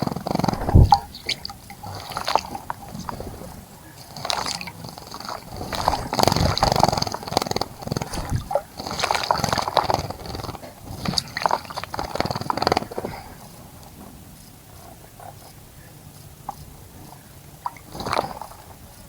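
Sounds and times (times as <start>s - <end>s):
bird splashing in water: 0.3s - 1.6s, 5.4s - 10.0s.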